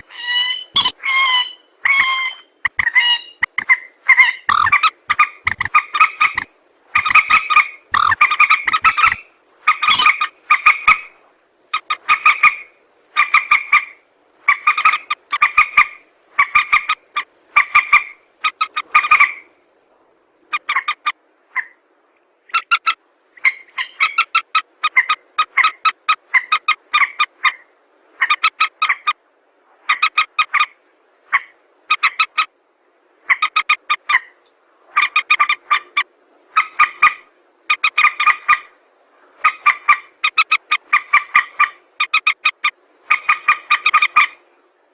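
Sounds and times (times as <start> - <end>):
rail bird pulsed calls: 0.0 - 21.8.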